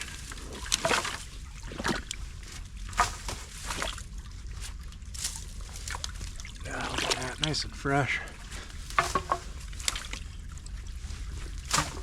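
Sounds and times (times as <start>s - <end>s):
sticks and rocks knocking: 0.0s - 4.0s, 8.5s - 10.3s, 11.4s - 12.0s
creek water trickling: 0.0s - 12.0s
water sloshing: 0.0s - 12.0s.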